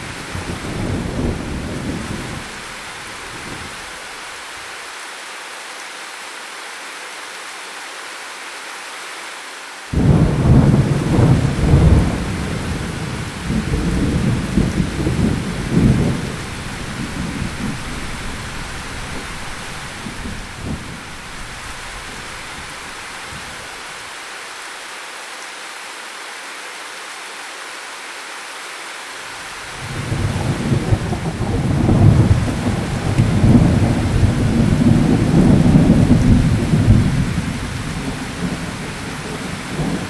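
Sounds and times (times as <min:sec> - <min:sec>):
rumble of thunder: 0:00.0 - 0:03.8, 0:10.0 - 0:23.7, 0:29.7 - 0:40.0
steady rain falling: 0:00.0 - 0:40.0.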